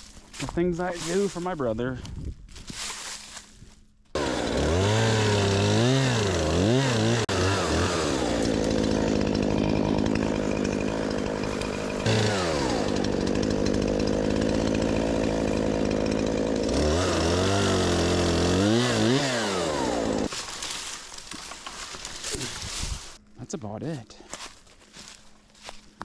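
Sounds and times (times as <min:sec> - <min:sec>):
chainsaw revving: 0:04.2 - 0:20.3.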